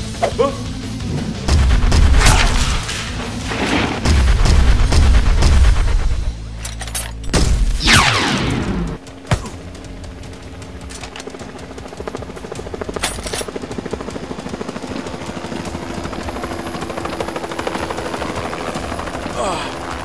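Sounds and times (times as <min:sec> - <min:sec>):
fast throbbing pulse: 0:01.0 - 0:06.3
sharp hit: 0:01.4 - 0:06.3.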